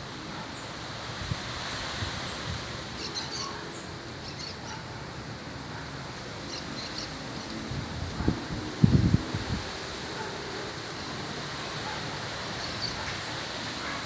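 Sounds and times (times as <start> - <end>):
outdoor background hiss: 0.0 - 14.0
low wind rumble: 6.8 - 12.0.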